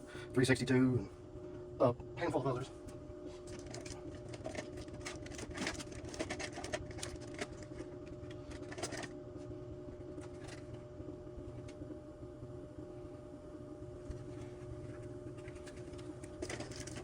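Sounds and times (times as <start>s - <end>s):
faint steady hum: 0.0s - 17.0s
small saw parts clicking and clattering: 3.6s - 7.5s.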